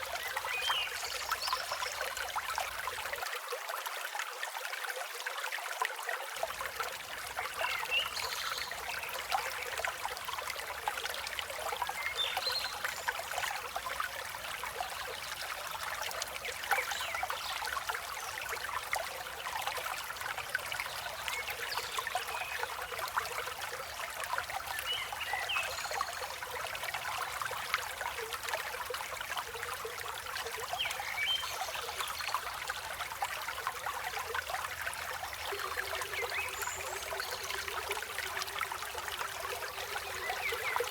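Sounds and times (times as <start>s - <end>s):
river flowing: 26.4s - 40.9s.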